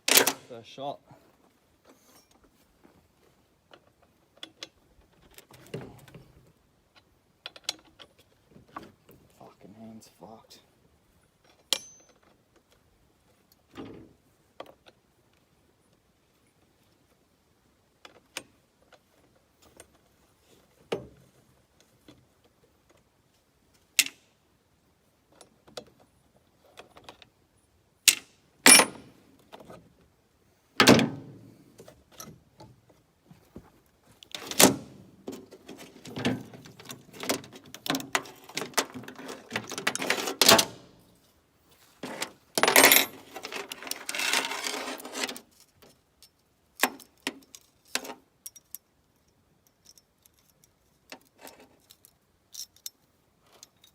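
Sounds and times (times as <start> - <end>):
chainsaw chain clinking and rattling: 11.4 - 12.4, 35.4 - 40.7, 42.0 - 53.9.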